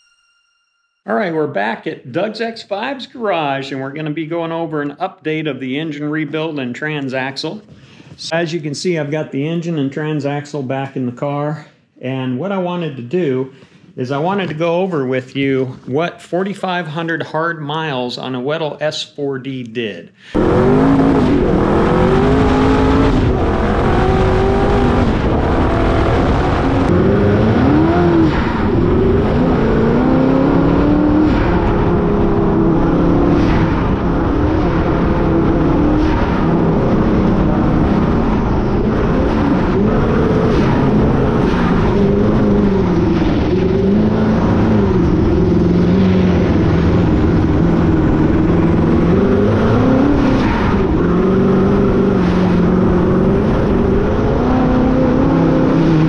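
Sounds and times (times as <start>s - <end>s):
car engine revving: 20.3s - 56.0s
steady rushing noise: 20.4s - 56.0s.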